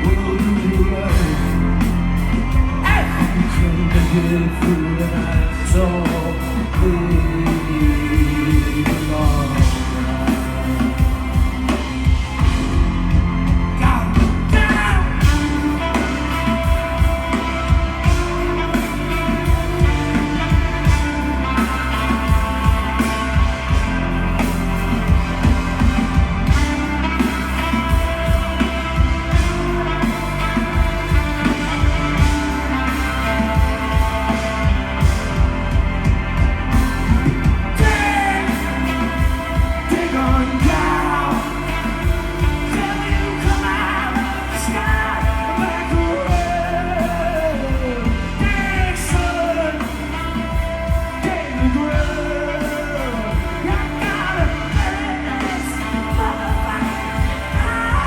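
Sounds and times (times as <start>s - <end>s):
live rock band playing: 0.0s - 58.0s
person singing wordless notes: 37.8s - 58.0s.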